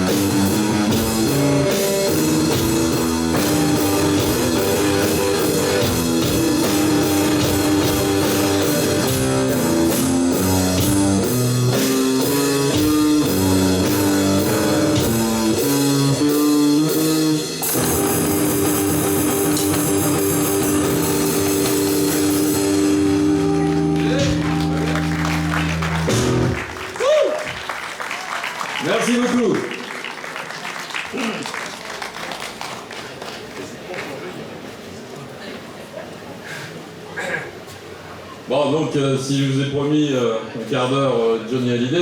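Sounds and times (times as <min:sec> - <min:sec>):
stepping bass line: 0:00.0 - 0:27.0
rock band playing: 0:00.0 - 0:28.1.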